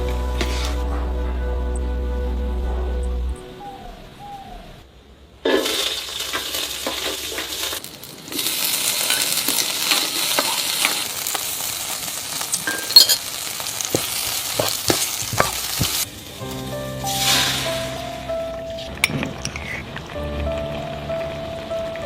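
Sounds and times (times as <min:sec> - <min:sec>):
spatula scraping a pan: 0:00.4 - 0:00.8, 0:13.9 - 0:16.0
food sizzling in a pan: 0:05.5 - 0:18.3
sharp clink: 0:12.5 - 0:13.2.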